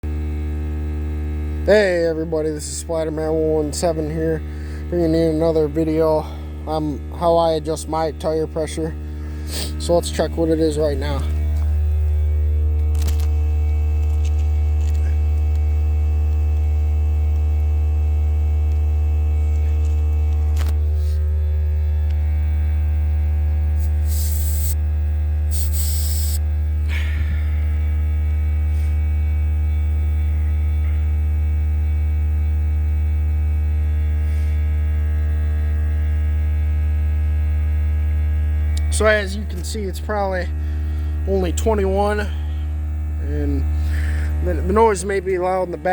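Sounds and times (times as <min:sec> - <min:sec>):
air compressor humming: 0:00.1 - 0:45.9
short hiss of air: 0:23.8 - 0:24.8, 0:25.5 - 0:26.4.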